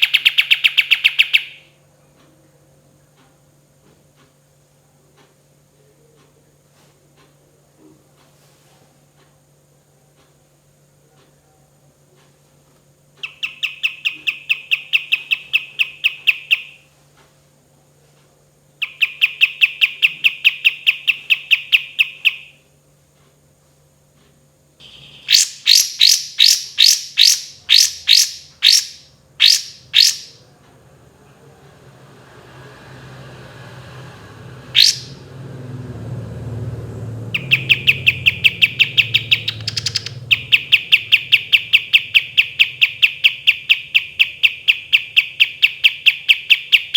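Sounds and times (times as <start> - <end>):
bird singing rapid trills: 0.0 - 1.7, 13.2 - 16.8, 18.8 - 22.6, 24.8 - 30.4, 34.7 - 35.3, 37.2 - 46.9
faint steady hum: 0.0 - 46.9
low rumbling noise: 30.4 - 41.1.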